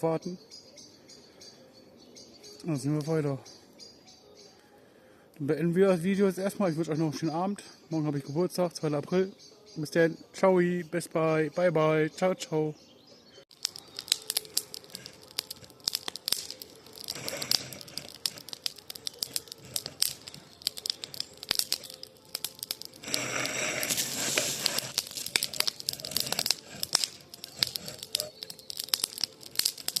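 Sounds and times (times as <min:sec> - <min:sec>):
campfire crackling and popping: 0:13.5 - 0:30.0.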